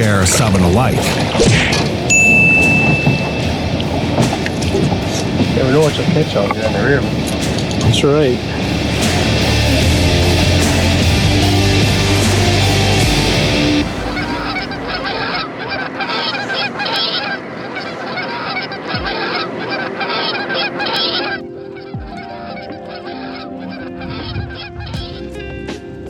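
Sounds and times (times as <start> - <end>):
geese honking: 8.5 - 25.2.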